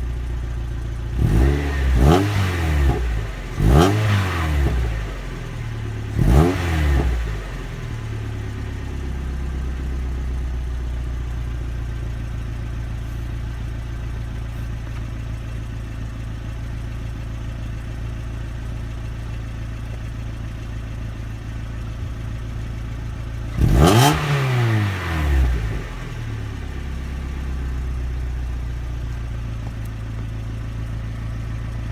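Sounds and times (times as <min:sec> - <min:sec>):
car engine idling: 0:00.0 - 0:31.9
engine revving: 0:01.1 - 0:08.4, 0:23.5 - 0:28.1.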